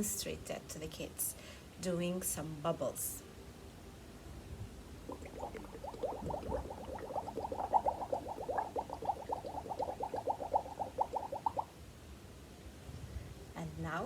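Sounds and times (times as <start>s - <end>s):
bubbling in soapy water: 5.1s - 11.7s.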